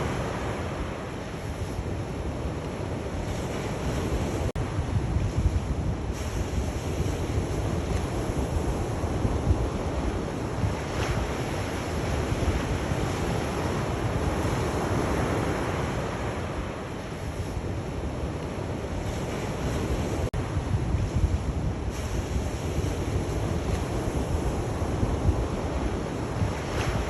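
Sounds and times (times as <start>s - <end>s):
sea waves washing in: 0.0s - 27.0s.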